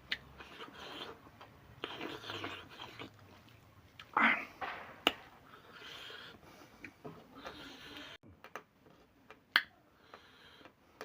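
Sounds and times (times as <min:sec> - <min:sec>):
chewing: 0:00.0 - 0:04.2.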